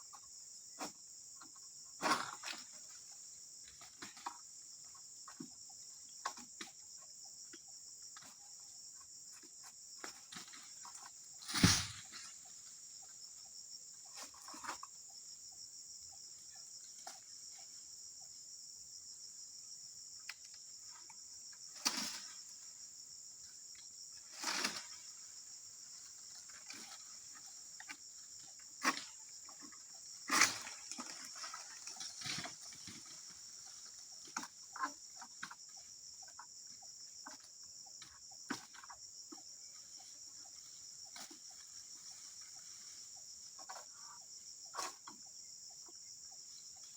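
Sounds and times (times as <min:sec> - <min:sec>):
high-pitched insect chorus: 0:00.0 - 0:46.9
rustles: 0:09.3 - 0:13.4, 0:23.7 - 0:36.4, 0:39.7 - 0:45.1.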